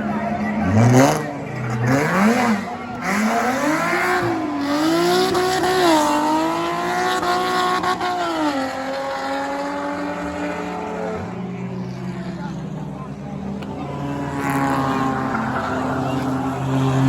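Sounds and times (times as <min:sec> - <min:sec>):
race car engine running hard: 0:00.0 - 0:17.0.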